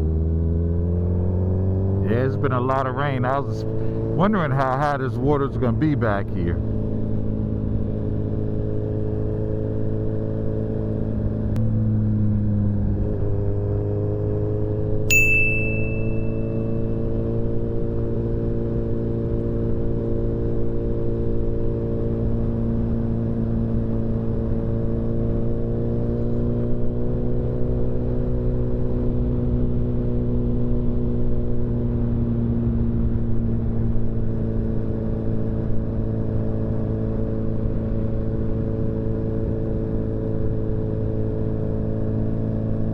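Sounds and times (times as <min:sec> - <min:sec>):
wind and road noise: 0:00.0 - 0:42.9
short high-pitched ding: 0:15.1 - 0:16.8.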